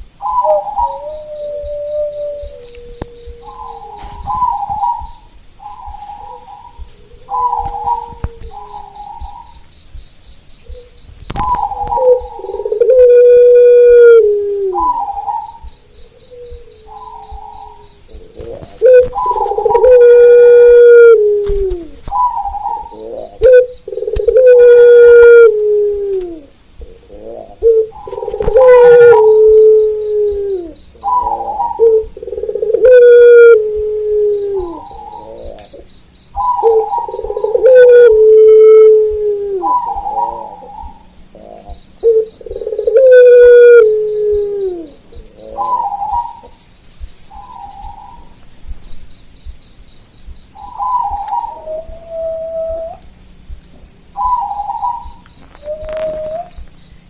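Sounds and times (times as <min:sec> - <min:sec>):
doves cooing: 0:00.0 - 0:57.0
faint high pulsing chirr: 0:00.0 - 0:57.0.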